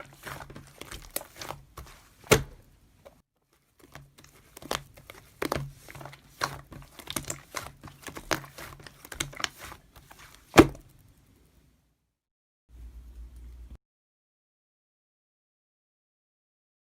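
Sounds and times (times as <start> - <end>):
crinkling rustles: 0.0 - 11.0
faint low hum: 12.7 - 13.8.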